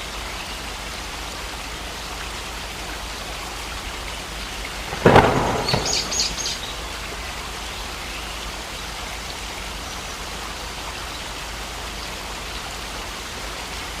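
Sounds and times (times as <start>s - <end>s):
heavy rain: 0.0s - 14.0s
loud crackling burst: 4.8s - 6.8s.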